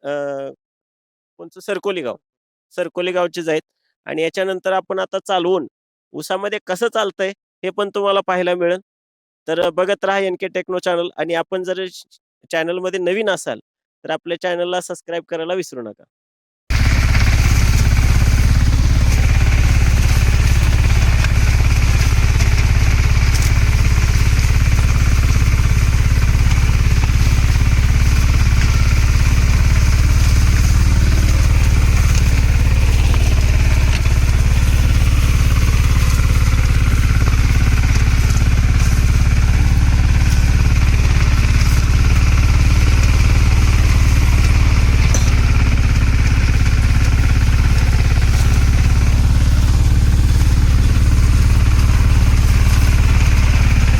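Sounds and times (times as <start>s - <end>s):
tractor engine running steadily: 16.7s - 53.9s.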